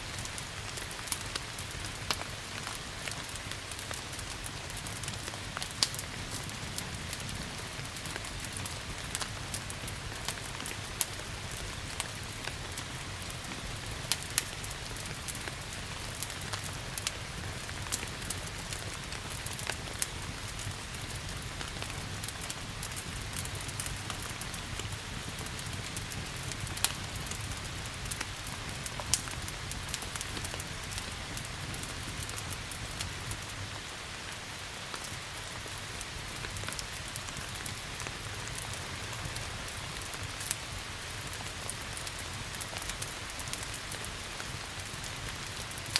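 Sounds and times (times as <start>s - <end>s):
wood fire crackling: 0.0s - 45.9s
fire popping and snapping: 0.1s - 45.9s.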